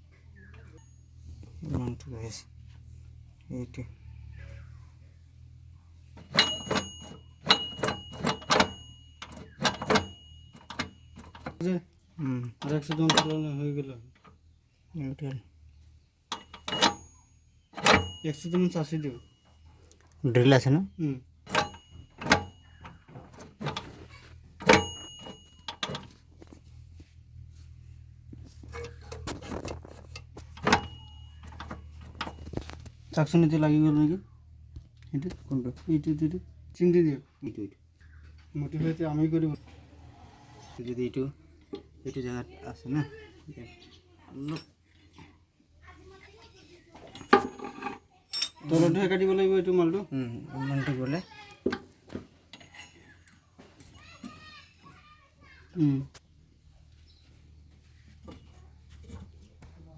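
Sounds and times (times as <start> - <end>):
metallic knocks: 6.2 - 11.7, 12.6 - 14.3, 16.3 - 19.6, 21.4 - 26.2, 28.7 - 32.8
metal part ringing: 6.2 - 11.8, 12.6 - 14.3, 16.3 - 19.8, 21.4 - 26.4, 28.7 - 33.8, 47.1 - 50.0, 52.5 - 54.9.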